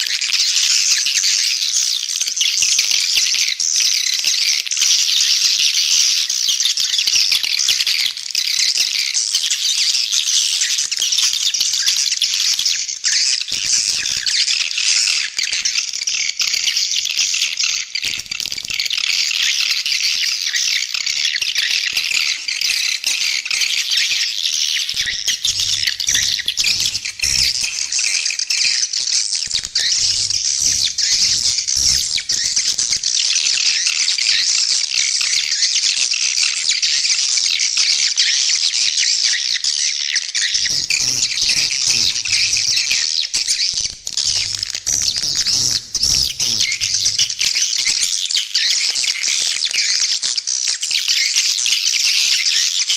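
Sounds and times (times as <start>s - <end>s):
swiftlet chirps and twitters: 21.6s - 28.8s, 29.4s - 33.4s, 40.6s - 48.1s.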